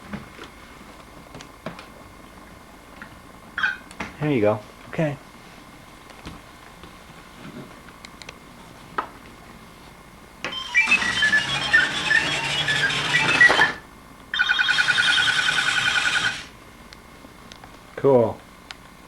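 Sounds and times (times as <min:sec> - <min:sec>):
electronic toy jingle of beeps: 0:10.5 - 0:13.8, 0:14.4 - 0:16.5
warbling electronic beeps: 0:10.5 - 0:13.8, 0:14.4 - 0:16.5.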